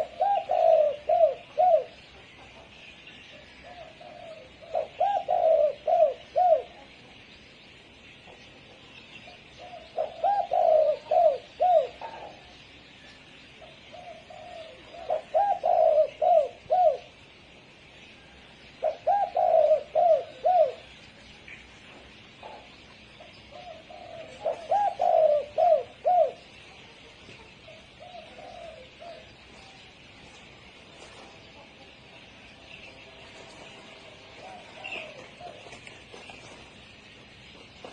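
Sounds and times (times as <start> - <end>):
dove cooing: 0.0 - 2.7, 3.3 - 7.0, 9.2 - 12.6, 13.5 - 17.3, 18.7 - 21.0, 22.4 - 30.0, 33.8 - 36.8
faint steady hiss: 0.0 - 37.9.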